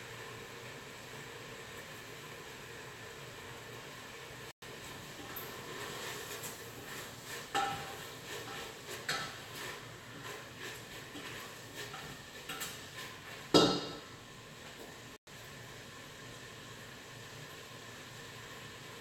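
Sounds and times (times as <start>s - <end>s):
pots and utensils clinking: 4.8s - 15.0s.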